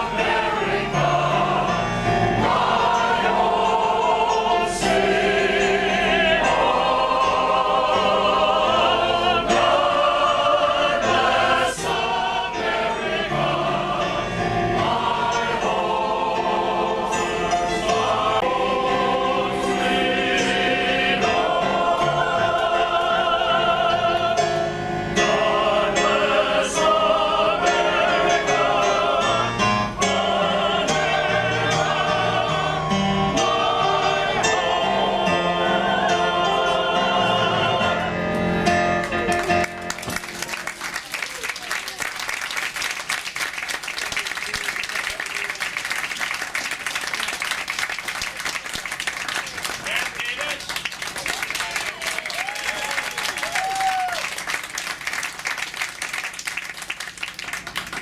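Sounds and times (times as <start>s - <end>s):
male choir singing in harmony: 0.0s - 39.0s.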